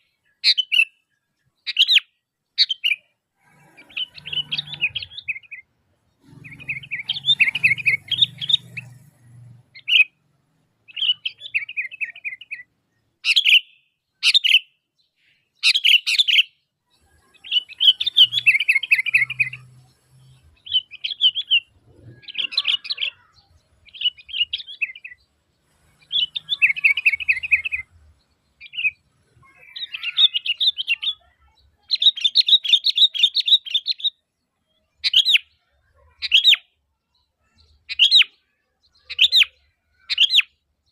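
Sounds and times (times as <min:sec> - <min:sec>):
bird calling: 0:01.6 - 0:10.2, 0:10.9 - 0:14.7, 0:15.3 - 0:34.2.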